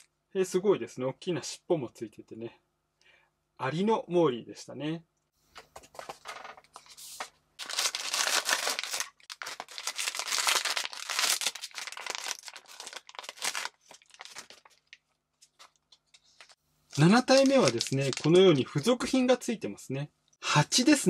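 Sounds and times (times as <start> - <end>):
foil wrapper crinkling and tearing: 7.6 - 18.8.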